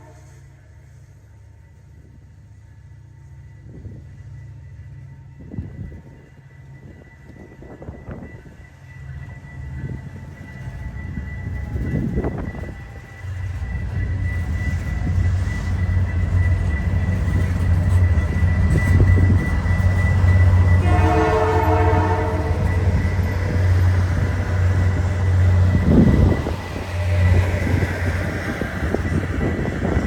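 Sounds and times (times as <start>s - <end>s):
train horn chord: 0.0s - 0.4s, 20.7s - 23.5s
diesel locomotive rumbling: 0.0s - 30.0s.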